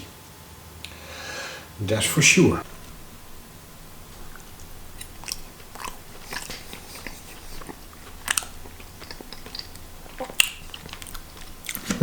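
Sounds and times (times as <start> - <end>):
person chewing food: 2.6 - 12.0
wet mouth clicks and smacks: 4.1 - 12.0.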